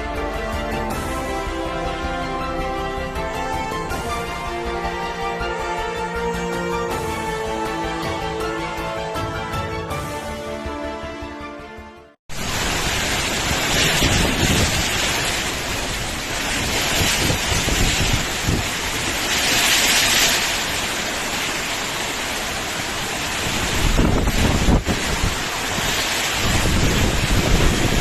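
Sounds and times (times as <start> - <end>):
heavy rain: 0.0 - 10.4, 12.3 - 28.0
background music: 0.0 - 12.2
strong wind: 12.3 - 28.0
wind buffeting microphone: 12.4 - 20.2, 22.9 - 28.0.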